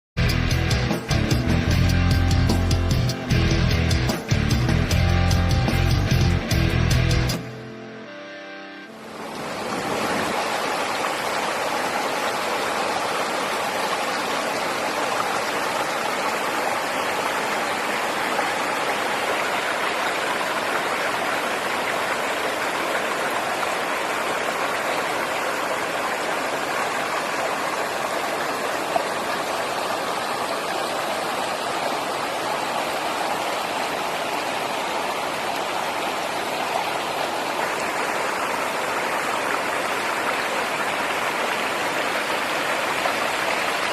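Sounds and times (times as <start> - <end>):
flowing water rushing: 7.4 - 43.9.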